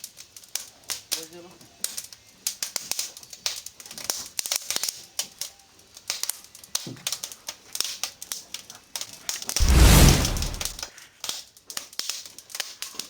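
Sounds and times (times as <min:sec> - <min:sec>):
wood fire crackling: 0:09.6 - 0:10.8.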